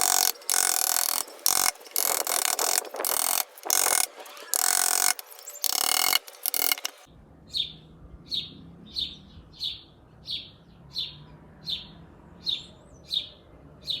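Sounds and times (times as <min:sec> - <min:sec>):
woodworking tool noise: 0:00.0 - 0:07.1
bird chirping: 0:00.0 - 0:14.0.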